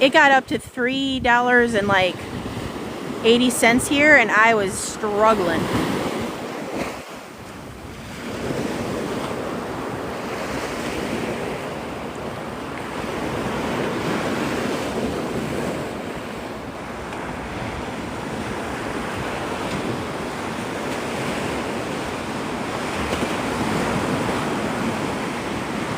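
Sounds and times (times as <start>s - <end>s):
wind buffeting microphone: 0.0s - 25.9s
surf breaking on beach: 1.3s - 25.9s.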